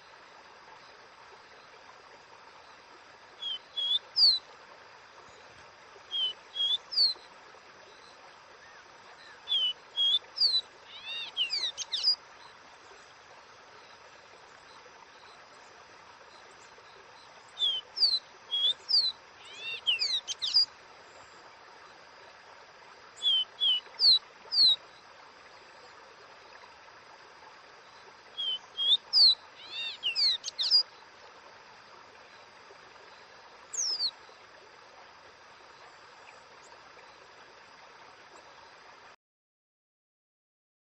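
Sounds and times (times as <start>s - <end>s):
faint hiss: 0.0s - 39.2s
bird whistling song: 3.4s - 4.4s, 6.1s - 7.2s, 9.2s - 12.2s, 17.6s - 20.7s, 23.2s - 24.8s, 28.4s - 30.9s, 33.7s - 34.1s.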